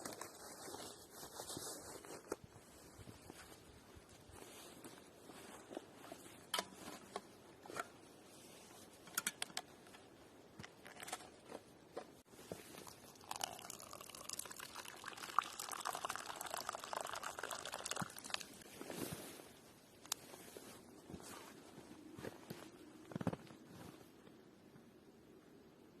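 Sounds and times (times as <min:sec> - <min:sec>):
liquid pouring into container: 0:12.8 - 0:18.6.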